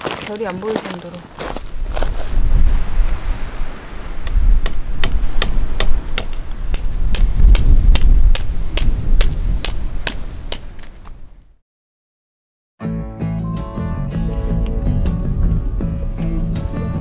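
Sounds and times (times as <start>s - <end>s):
wind rumble on microphone: 1.4s - 11.6s.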